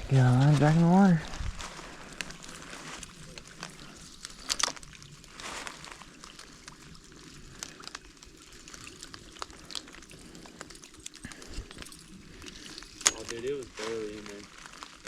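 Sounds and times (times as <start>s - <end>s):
rain pattering: 0.0s - 15.0s
rustle: 0.0s - 15.0s.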